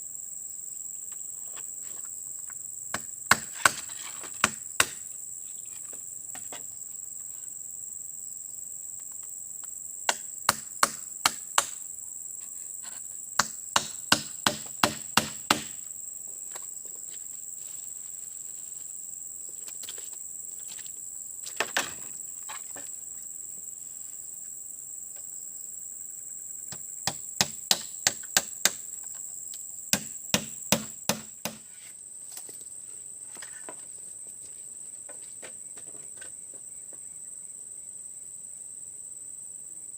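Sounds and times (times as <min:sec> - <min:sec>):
insect chirring: 0:00.0 - 0:33.7
sharp chopping knocks: 0:04.4 - 0:05.0, 0:13.4 - 0:15.8, 0:29.9 - 0:31.6.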